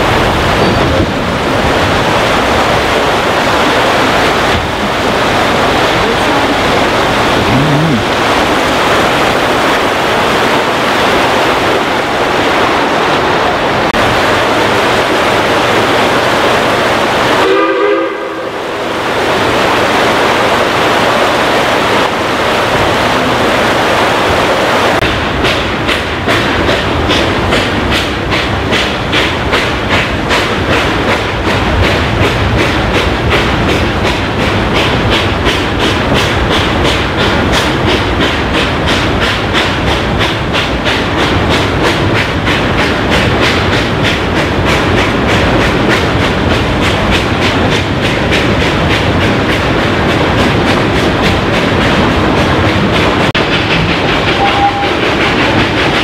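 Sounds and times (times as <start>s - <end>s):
wheels clicking on rails: 0.0s - 10.6s, 24.9s - 56.0s
steam train rumble and rattle: 0.0s - 56.0s.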